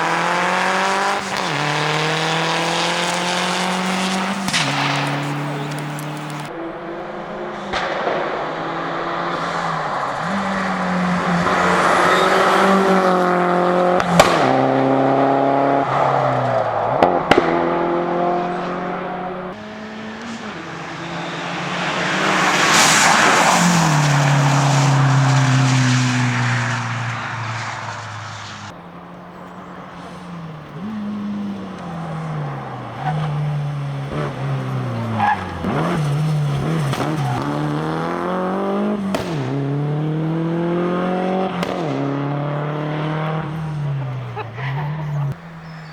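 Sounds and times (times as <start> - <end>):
sharp cracks: 0.0 - 6.5, 19.8 - 29.2, 29.8 - 40.0, 40.7 - 42.3
rally car engine revving: 0.0 - 45.9.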